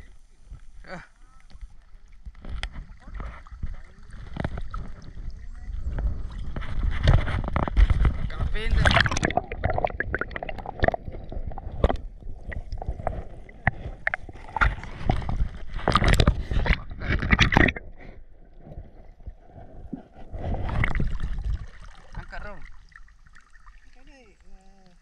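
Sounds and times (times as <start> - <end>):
water sloshing and splashing: 0.0 - 25.0.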